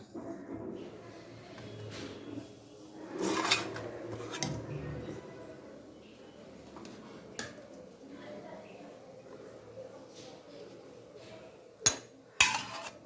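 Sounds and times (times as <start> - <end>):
utensil scraping cookware: 3.1 - 5.2, 11.9 - 13.0
utensils clinking: 11.8 - 13.0.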